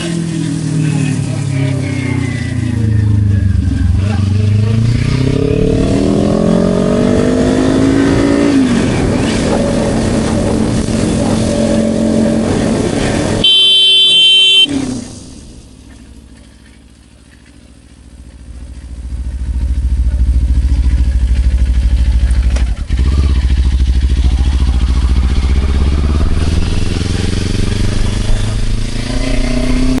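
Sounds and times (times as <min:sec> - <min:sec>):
motorcycle engine revving: 0:00.0 - 0:30.0
horn blaring: 0:13.4 - 0:14.8.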